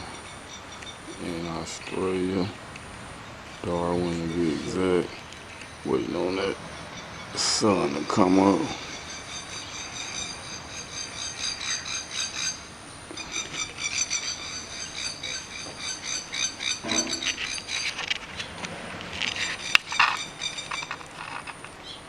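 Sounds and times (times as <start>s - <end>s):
lower animal call: 0.0s - 22.0s
rasping high-pitched chirps: 7.5s - 18.4s.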